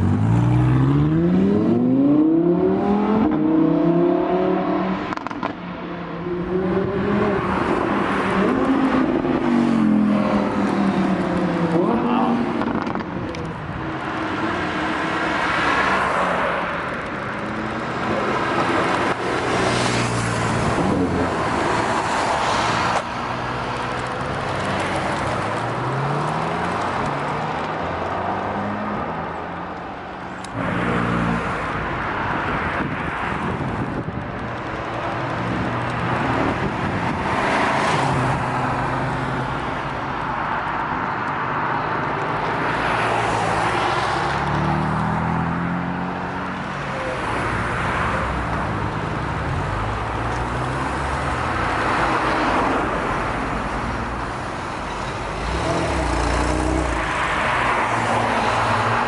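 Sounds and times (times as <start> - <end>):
cars and motorbikes revving past: 0.0 - 29.3, 41.4 - 59.0.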